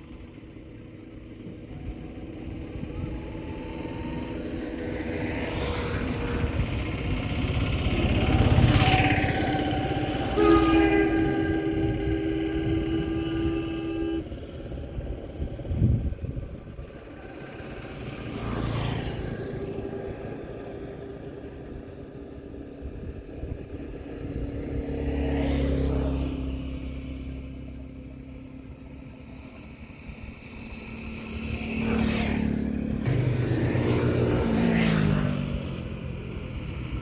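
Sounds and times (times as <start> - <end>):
vehicles passing by: 0.0 - 37.0
horn-like held tone: 0.8 - 14.6.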